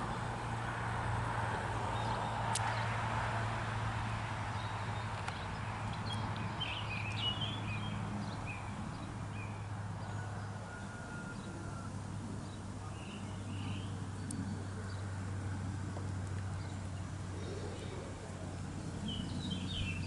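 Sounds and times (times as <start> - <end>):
steady low hum: 0.0 - 10.7
bird chirps: 4.5 - 9.6.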